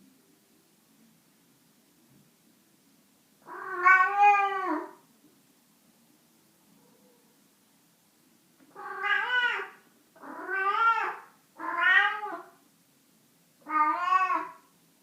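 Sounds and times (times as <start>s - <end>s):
cat meowing: 3.4s - 5.0s, 8.7s - 12.6s, 13.6s - 14.7s.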